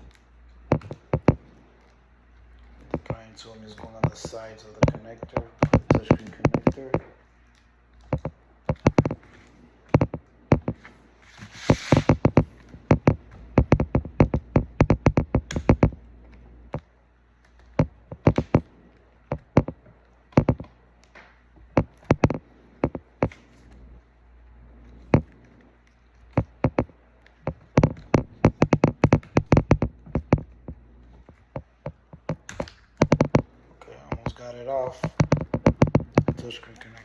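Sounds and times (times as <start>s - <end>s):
prying tool clicks and taps: 4.0s - 7.1s, 8.1s - 9.2s, 12.0s - 16.0s, 17.8s - 18.6s, 20.4s - 20.7s, 21.8s - 23.4s, 31.5s - 33.4s.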